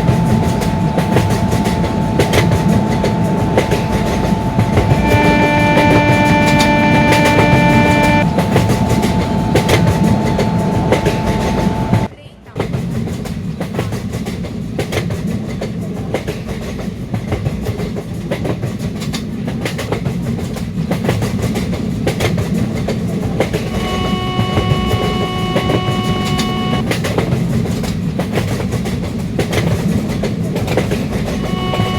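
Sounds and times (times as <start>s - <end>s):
train horn: 0.0s - 12.1s, 23.5s - 26.9s, 31.2s - 31.9s
train passing at high speed: 0.0s - 31.9s.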